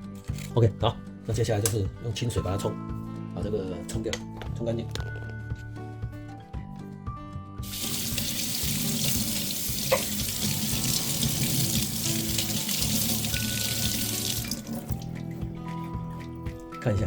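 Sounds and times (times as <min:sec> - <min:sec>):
tap water running: 0:07.6 - 0:16.6.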